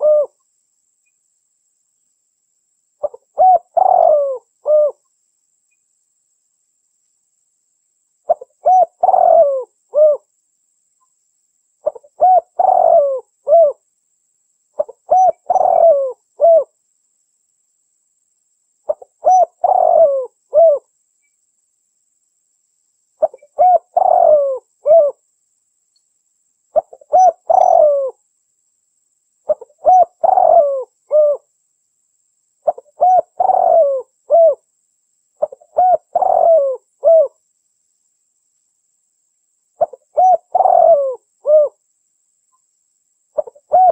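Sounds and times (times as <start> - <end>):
dove cooing: 0.0 - 0.4, 3.0 - 5.0, 8.3 - 10.3, 11.8 - 13.8, 14.8 - 16.7, 18.9 - 20.9, 23.2 - 25.2, 26.8 - 28.2, 29.5 - 31.5, 32.6 - 34.6, 35.4 - 37.4, 39.8 - 41.8, 43.4 - 43.9.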